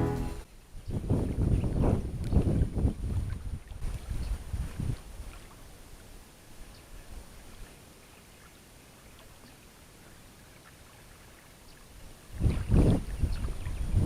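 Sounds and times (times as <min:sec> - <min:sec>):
wind buffeting microphone: 0:00.7 - 0:05.3, 0:12.3 - 0:14.0.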